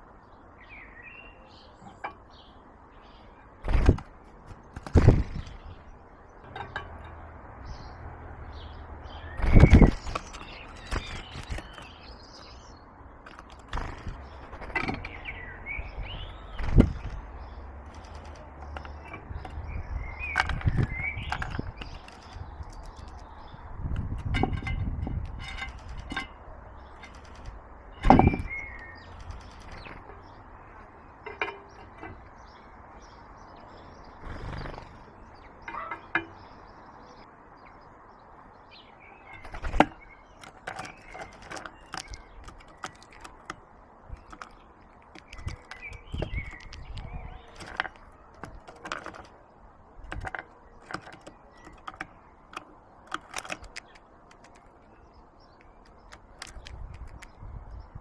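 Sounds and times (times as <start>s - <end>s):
small birds chirping: 0.0s - 58.0s
wings flapping: 3.6s - 5.7s, 9.4s - 11.9s, 13.3s - 15.1s, 27.0s - 30.1s, 39.4s - 43.4s
sharp taps and knocks on wood: 50.1s - 54.7s.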